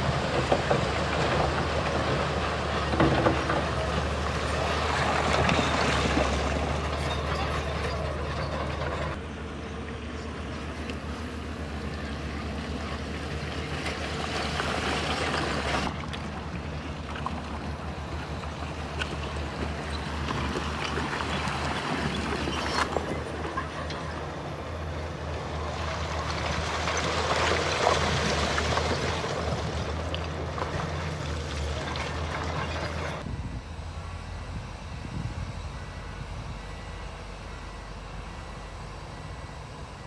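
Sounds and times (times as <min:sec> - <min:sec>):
rattle and clatter of stone: 0:00.0 - 0:09.2, 0:18.2 - 0:24.1
heavy diesel engine drone: 0:00.0 - 0:40.0.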